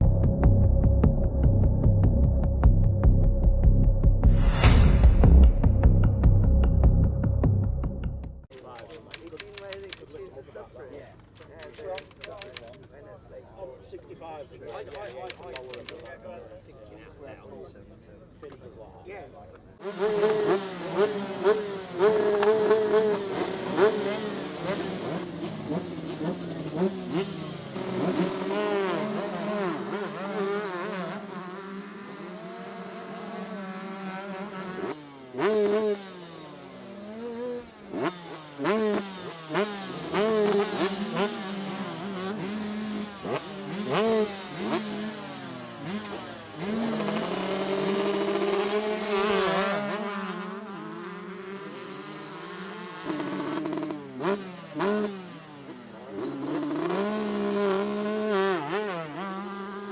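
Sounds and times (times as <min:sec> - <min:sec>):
motocross bikes revving: 0:11.4 - 0:12.8, 0:14.7 - 0:16.1, 0:19.8 - 0:59.9.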